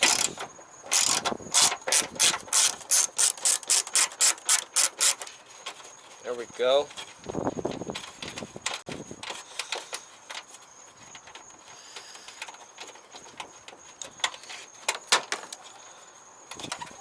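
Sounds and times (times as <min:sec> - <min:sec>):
hand tools clicking and knocking: 0:00.0 - 0:05.8.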